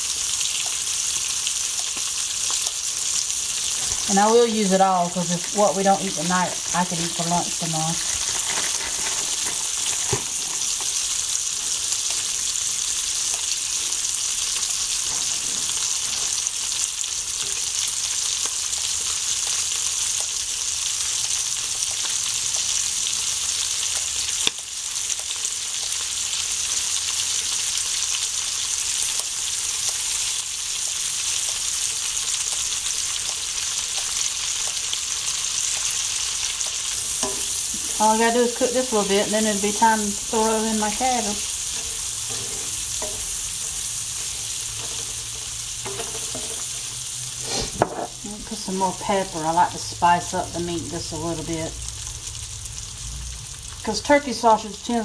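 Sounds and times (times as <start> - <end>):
food sizzling in a skillet: 0.0 - 55.0.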